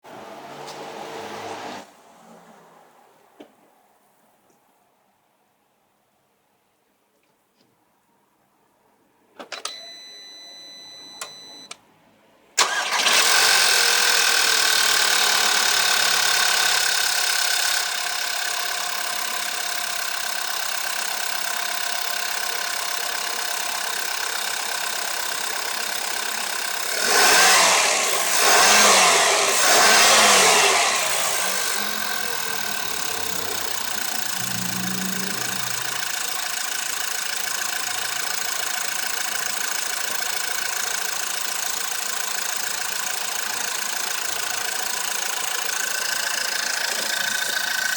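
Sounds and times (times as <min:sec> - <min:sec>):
car engine revving: 0:12.6 - 0:17.4, 0:25.3 - 0:36.2
ignition whine: 0:12.6 - 0:39.6
car engine starting and idling: 0:12.6 - 0:47.9
timing chain rattle: 0:29.8 - 0:47.9.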